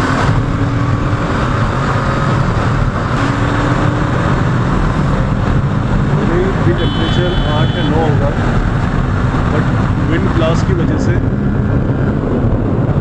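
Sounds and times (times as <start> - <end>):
motorcycle engine cruising: 0.0 - 13.0
wind noise on microphone: 11.1 - 13.0.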